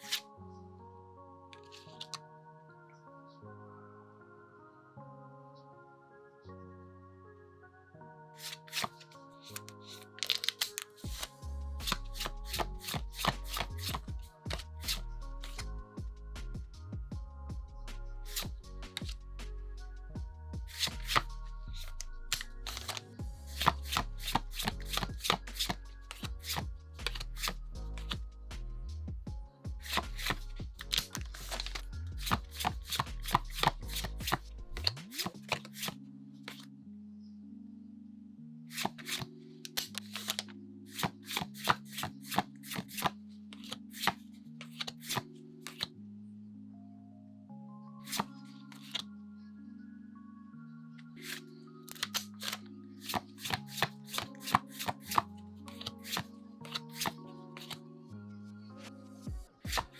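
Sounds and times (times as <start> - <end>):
trading cards snapping and sliding: 0.0 - 0.3, 1.6 - 2.2, 8.4 - 15.7, 18.3 - 19.2, 20.7 - 28.2, 29.8 - 36.6, 38.7 - 45.9, 48.0 - 49.0, 51.1 - 57.9, 59.7 - 59.9
background music: 0.0 - 59.9.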